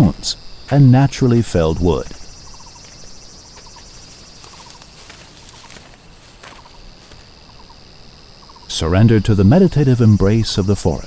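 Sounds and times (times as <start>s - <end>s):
insects buzzing chorus: 0.0s - 11.0s
small animal rattling chirps: 1.6s - 7.8s.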